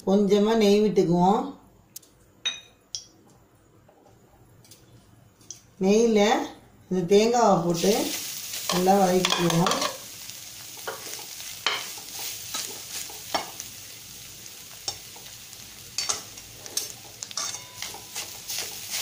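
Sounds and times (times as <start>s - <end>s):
coconut sizzling in a pan: 7.4s - 19.0s.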